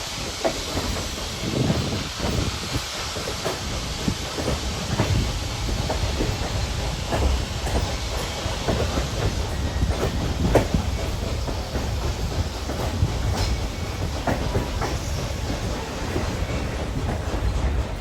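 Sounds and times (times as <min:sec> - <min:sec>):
train rumbling on track: 0:00.0 - 0:18.0
train wheels clacking: 0:00.0 - 0:18.0.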